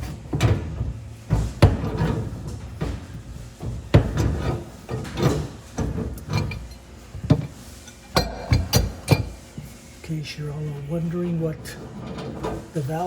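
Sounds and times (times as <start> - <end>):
rubbing and scraping: 1.2 - 9.9
sharp knocks on pipe fittings: 8.1 - 9.4.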